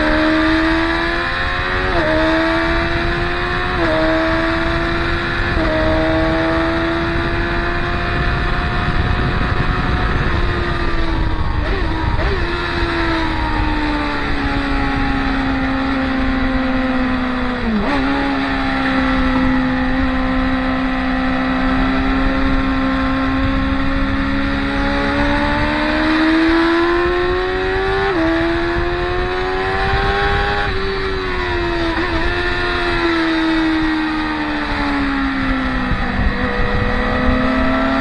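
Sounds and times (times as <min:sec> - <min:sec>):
motorcycle engines racing: 0:00.0 - 0:38.0.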